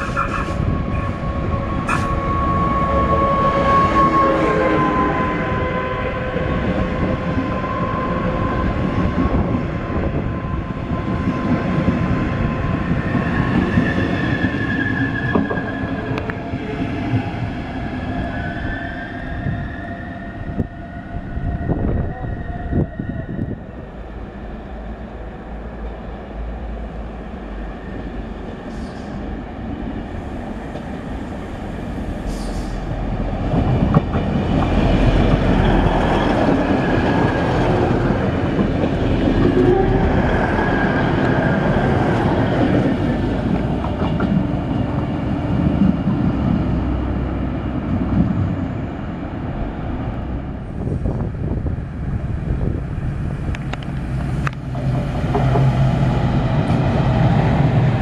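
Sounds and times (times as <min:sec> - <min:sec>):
diesel train running past: 0:00.0 - 0:58.0
distant train rumbling: 0:00.0 - 0:58.0.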